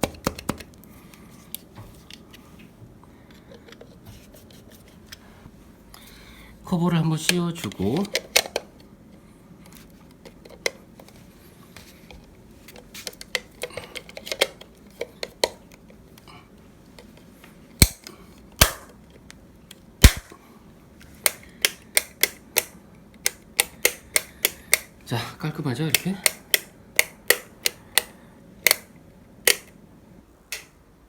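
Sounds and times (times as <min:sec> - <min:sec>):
rocker switches clicking: 0:21.2 - 0:24.9, 0:25.9 - 0:29.7, 0:30.5 - 0:30.8.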